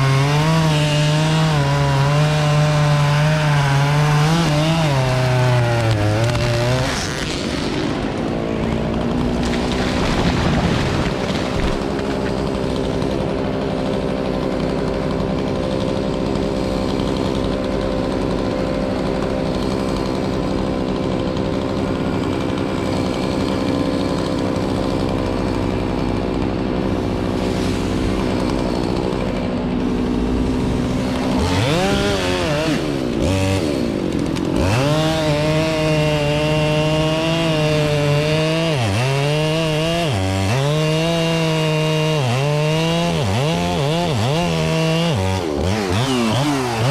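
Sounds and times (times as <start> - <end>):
chainsaw engine revving: 0.0 - 46.9.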